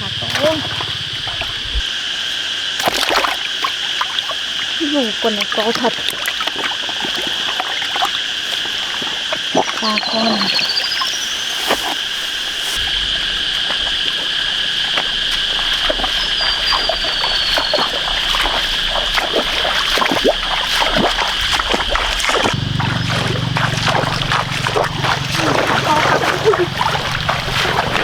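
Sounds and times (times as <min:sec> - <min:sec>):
low rumble: 0:00.0 - 0:01.8, 0:12.8 - 0:28.0
water and mud splashing: 0:00.0 - 0:28.0.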